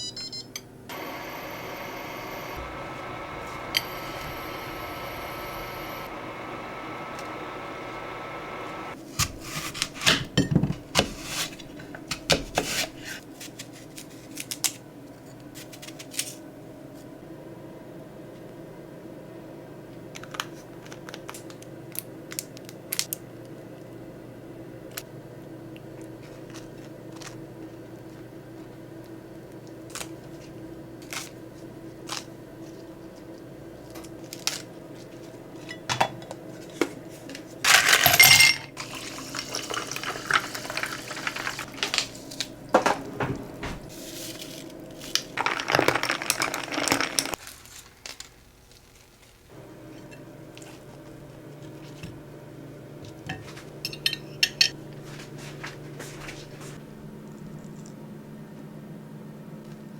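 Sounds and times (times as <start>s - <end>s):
steady low hum: 0.0s - 12.3s, 49.5s - 59.9s
dishes and utensils clinking: 37.7s - 42.1s, 53.3s - 54.8s.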